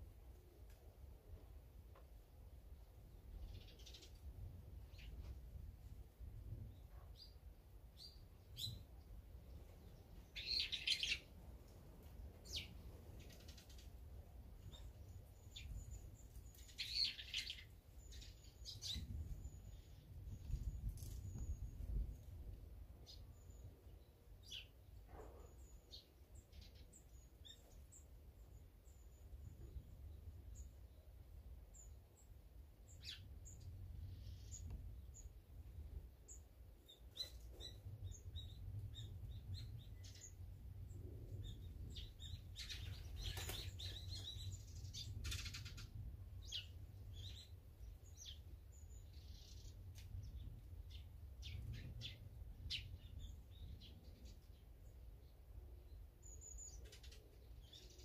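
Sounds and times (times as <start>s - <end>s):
songbirds chirping: 0.0s - 58.0s
faint low rumble: 28.4s - 57.8s.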